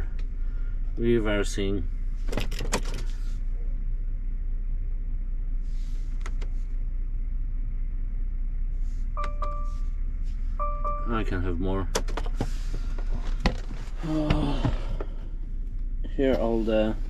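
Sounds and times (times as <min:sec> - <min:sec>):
diesel engine idling: 0:00.0 - 0:17.0
electronic beep: 0:09.2 - 0:09.8, 0:10.6 - 0:11.2.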